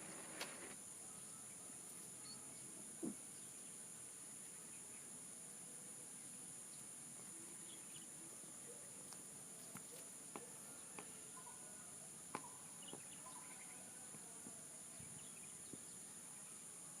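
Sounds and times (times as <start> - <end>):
insect chorus: 0.0 - 17.0
distant bird chirps: 6.7 - 16.6.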